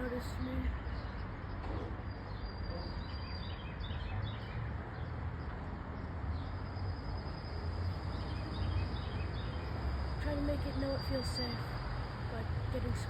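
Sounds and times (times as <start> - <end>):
faint bird chirps: 0.0 - 5.0.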